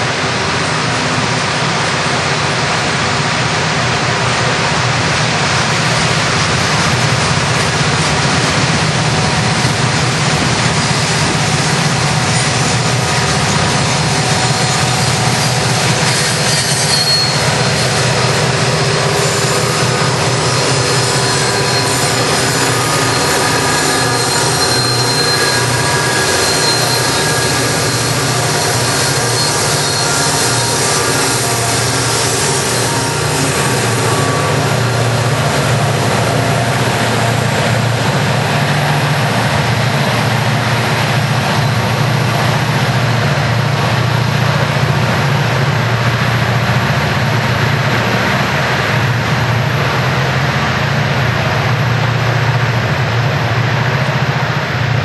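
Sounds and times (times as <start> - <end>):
diesel locomotive engine drone: 0.0 - 55.0
high squealing: 10.7 - 39.7.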